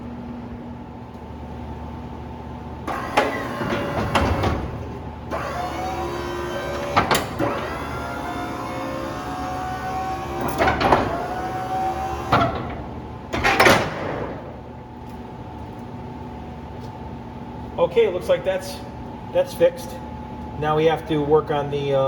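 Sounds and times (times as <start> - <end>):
hydraulic pump motor whining: 2.7 - 14.9
loud clunks: 2.9 - 5.5, 6.5 - 14.7.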